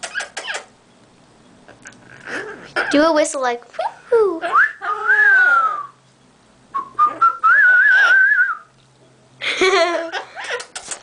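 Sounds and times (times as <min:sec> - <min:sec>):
parrot whistling: 0:04.4 - 0:06.0, 0:06.7 - 0:08.7.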